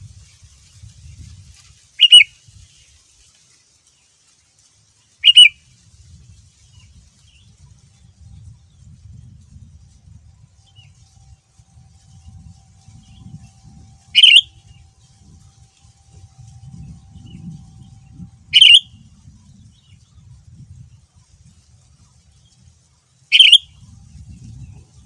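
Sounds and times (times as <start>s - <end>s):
bird calling: 2.0s - 2.3s, 5.2s - 5.6s, 14.1s - 15.1s, 18.5s - 19.0s, 23.3s - 23.8s
faint bird chirps: 2.0s - 2.3s, 5.2s - 5.5s, 10.4s - 15.1s, 15.8s - 20.4s, 23.3s - 24.6s.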